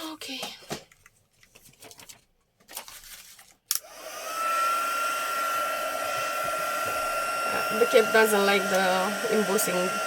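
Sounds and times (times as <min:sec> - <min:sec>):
heat tool fan whining: 0:03.8 - 0:10.0.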